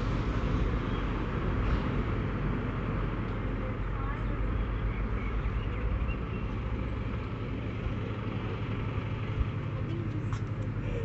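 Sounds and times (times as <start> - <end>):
passenger train rumble and hiss: 0.0 - 5.2.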